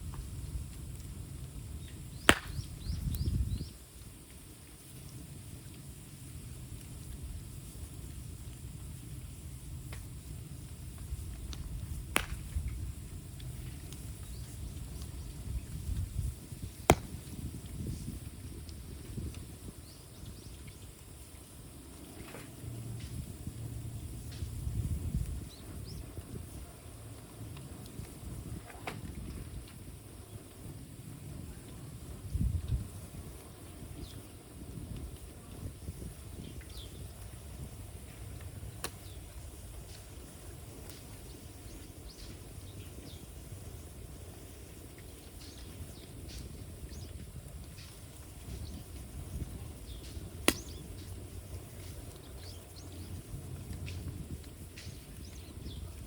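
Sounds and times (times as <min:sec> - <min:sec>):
bamboo fire crackling: 0:00.0 - 0:56.0
low fire rumble: 0:00.0 - 0:56.0.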